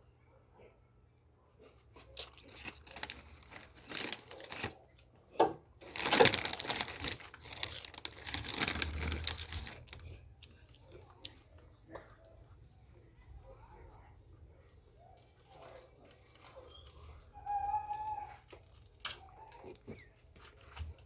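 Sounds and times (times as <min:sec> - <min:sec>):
crinkling and rustling: 0:01.6 - 0:05.1, 0:05.8 - 0:12.1.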